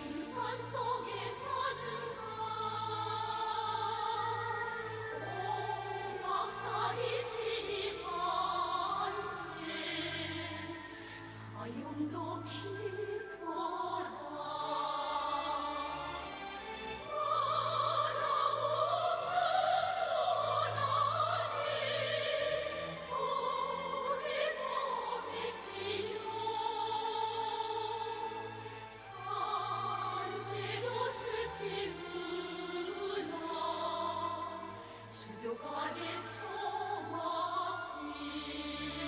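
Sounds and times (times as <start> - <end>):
orchestral accompaniment: 0.0 - 39.0
woman singing operatically: 35.2 - 39.0.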